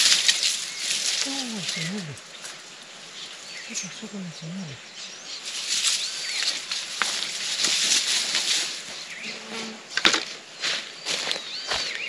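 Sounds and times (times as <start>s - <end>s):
steady rustling hiss: 0.0s - 11.7s
birds chirping and whistling: 10.6s - 12.0s.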